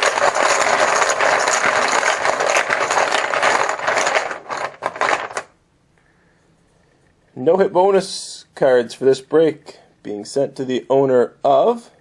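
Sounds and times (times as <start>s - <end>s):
poker chips clattering in bucket: 0.0s - 5.5s.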